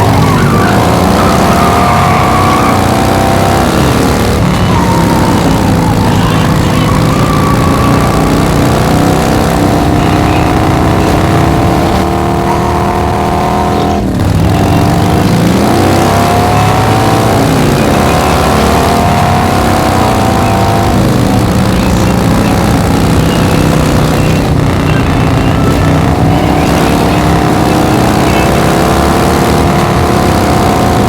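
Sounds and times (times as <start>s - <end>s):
car engines accelerating hard: 0.0s - 31.0s.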